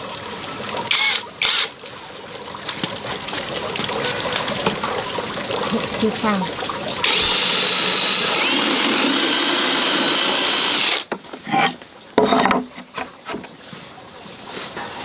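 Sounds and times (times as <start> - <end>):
power tool whining on wood: 0.9 - 1.7, 7.0 - 11.1
wood knocks and scrapes: 11.1 - 13.6.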